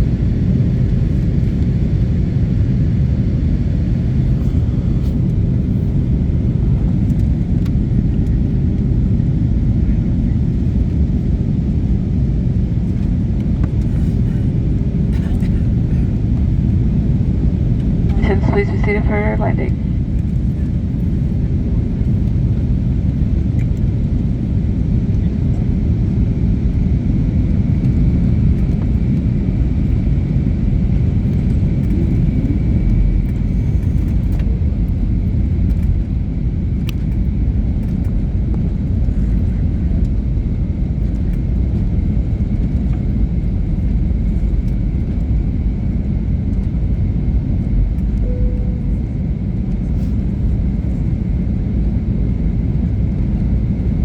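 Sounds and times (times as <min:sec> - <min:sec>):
airliner engines and rushing air: 0:00.0 - 0:54.0
faint high whine: 0:48.2 - 0:50.1.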